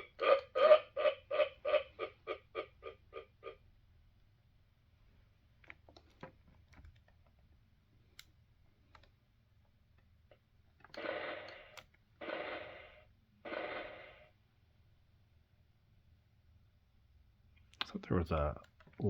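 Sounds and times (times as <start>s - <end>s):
toy electronic sound effects: 0.0s - 3.6s.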